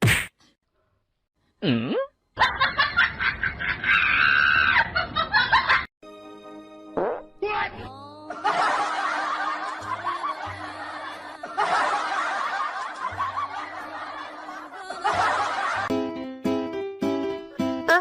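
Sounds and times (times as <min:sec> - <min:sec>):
group of people laughing: 0:02.4 - 0:05.9, 0:08.3 - 0:15.9
background music: 0:06.0 - 0:18.0.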